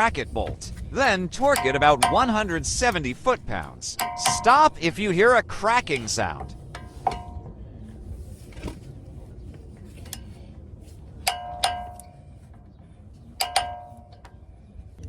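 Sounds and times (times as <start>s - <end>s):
metal hand tools clinking: 1.4s - 3.0s, 3.9s - 4.8s, 11.3s - 12.2s, 13.4s - 14.2s
ringing metal clanks: 1.4s - 3.1s, 3.9s - 5.0s, 5.7s - 7.6s, 11.2s - 12.4s, 13.4s - 14.4s.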